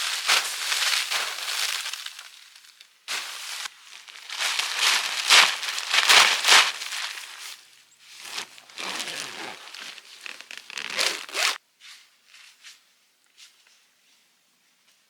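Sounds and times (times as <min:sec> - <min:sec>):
fabric rustling: 0:03.1 - 0:11.6
zipper being pulled: 0:08.2 - 0:11.6.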